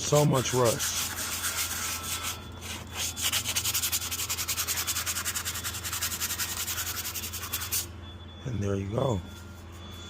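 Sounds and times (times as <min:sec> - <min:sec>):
abrasive scraping rusty metal: 0:00.0 - 0:08.0
steady low hum: 0:00.0 - 0:10.0.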